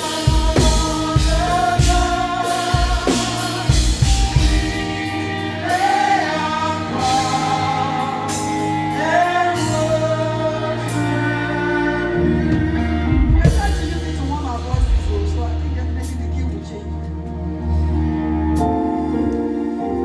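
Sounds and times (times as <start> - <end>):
bass: 0.0 - 20.0
voices singing gospel: 0.0 - 20.0
drum hits: 0.3 - 5.0.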